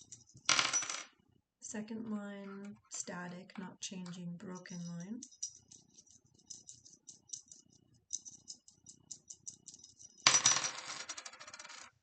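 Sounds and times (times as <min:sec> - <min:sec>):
coins clattering on a surface: 0:00.0 - 0:01.1, 0:04.7 - 0:12.0
coins clinking in hands: 0:00.0 - 0:01.1, 0:04.6 - 0:12.0.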